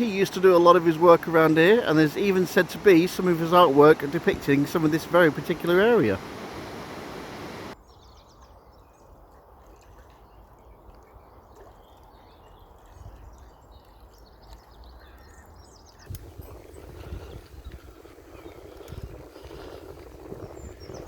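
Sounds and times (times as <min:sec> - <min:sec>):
birds chirping: 0:00.0 - 0:08.1, 0:14.0 - 0:21.0
wind and bicycle riding noise: 0:00.0 - 0:08.3, 0:12.2 - 0:21.0
rough rumbling noise: 0:01.4 - 0:07.8
bicycle riding noise: 0:16.1 - 0:21.0.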